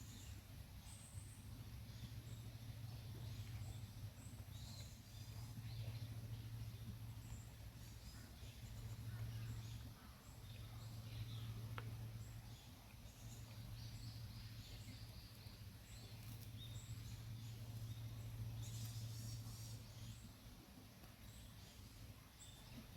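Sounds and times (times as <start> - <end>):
steady low hum: 0.0 - 22.9
small bird chirps: 7.3 - 20.3
faint click: 11.7 - 11.9.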